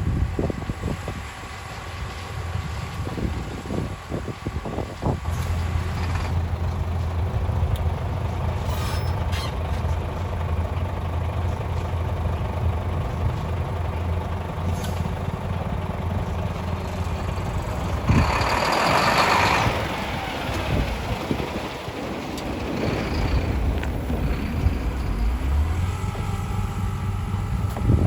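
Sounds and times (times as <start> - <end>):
truck engines humming: 0.0 - 28.0
air brakes hissing: 8.6 - 9.6.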